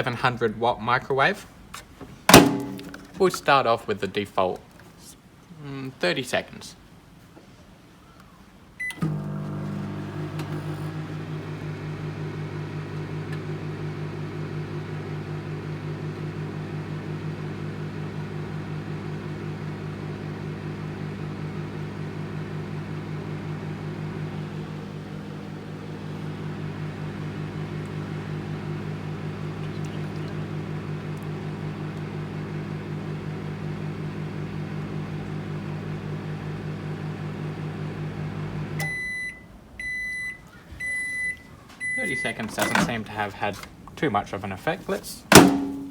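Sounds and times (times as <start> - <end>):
microwave oven humming: 2.3 - 3.0, 8.8 - 43.2, 45.3 - 45.9
microwave beep: 8.8 - 16.4, 36.9 - 42.9.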